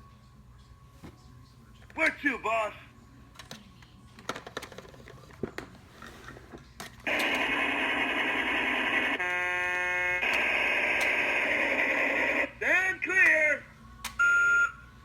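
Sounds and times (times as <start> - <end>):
toy engine sound effect: 7.1 - 12.5
toy horn tone: 9.2 - 12.5.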